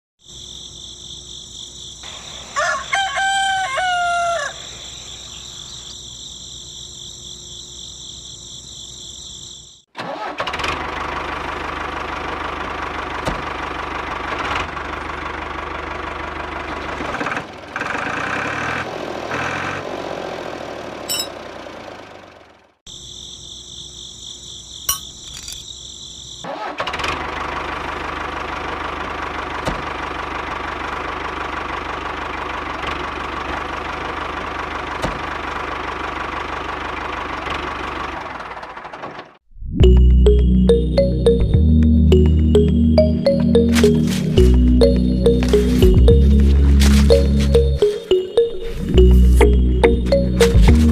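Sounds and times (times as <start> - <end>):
rooster crowing: 2.4 - 5.0
small tractor motor running: 10.0 - 22.7.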